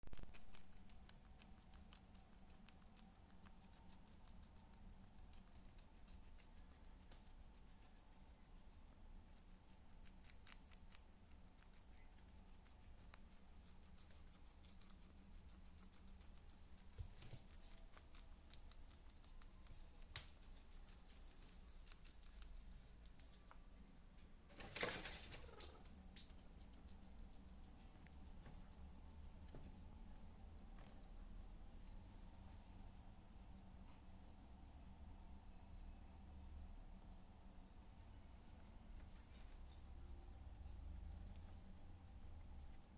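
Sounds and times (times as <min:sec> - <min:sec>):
guinea pig crunching vegetables: 0:00.0 - 0:42.9
low hum: 0:25.4 - 0:42.9.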